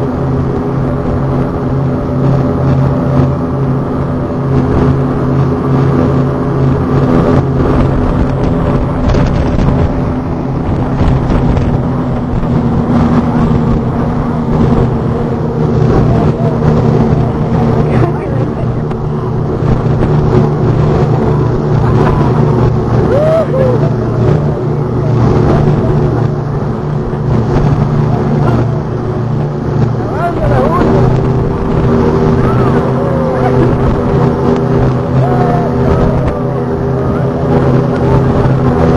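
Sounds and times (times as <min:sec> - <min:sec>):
boat engines droning: 0:00.0 - 0:38.9
water rushing: 0:00.0 - 0:38.9
faint voices: 0:14.6 - 0:38.9.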